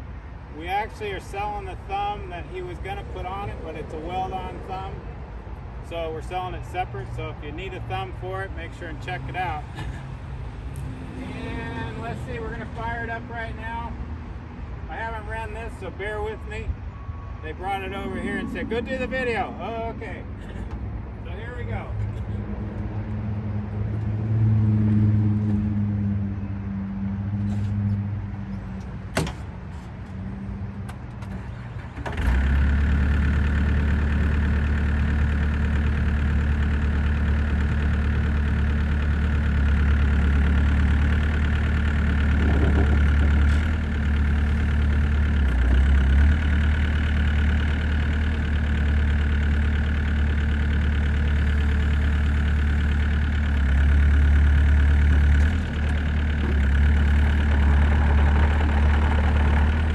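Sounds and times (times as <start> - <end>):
diesel engine starting and idling: 27.4 - 59.9.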